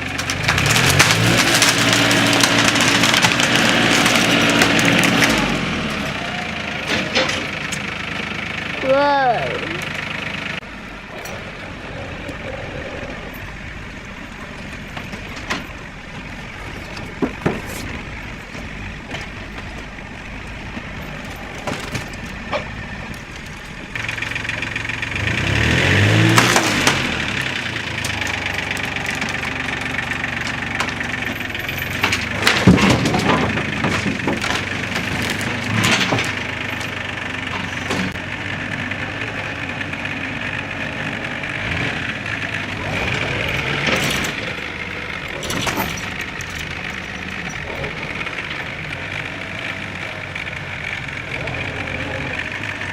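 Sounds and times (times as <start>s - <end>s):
sharp cracks and knocks: 0.0s - 6.0s, 26.1s - 38.2s
tractor diesel engine revving: 0.0s - 52.9s.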